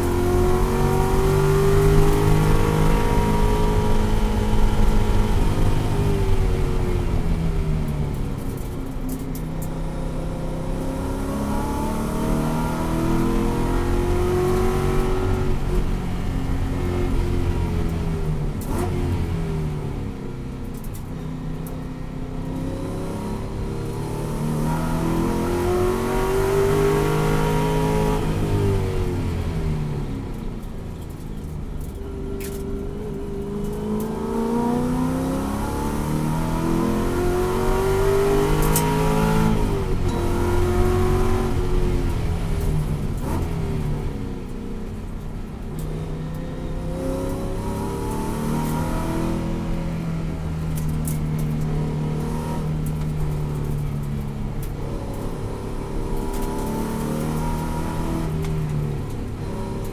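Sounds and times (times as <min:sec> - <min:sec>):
race car engine revving: 0:00.0 - 0:06.9, 0:31.4 - 0:44.0, 0:46.7 - 0:59.9.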